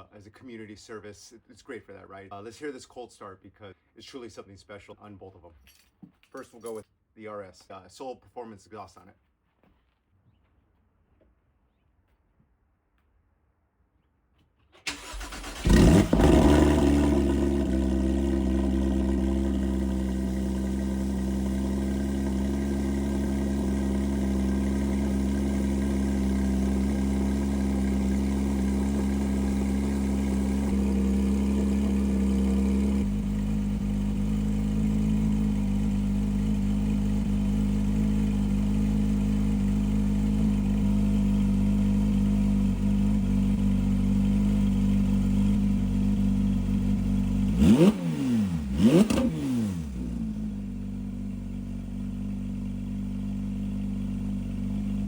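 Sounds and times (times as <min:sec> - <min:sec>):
starter motor cranking: 0:14.9 - 0:17.1
car engine revving and idling: 0:14.9 - 0:55.0.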